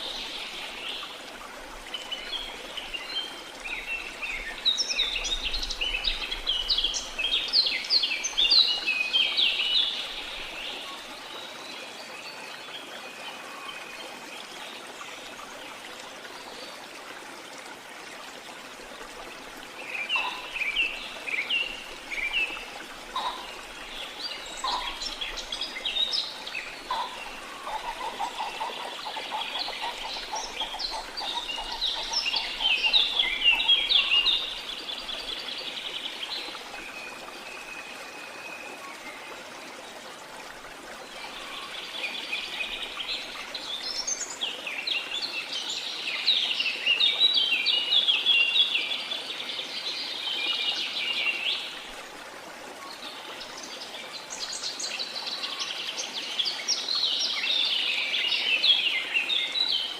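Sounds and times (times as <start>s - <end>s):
songbirds chirping: 18.9s - 39.5s.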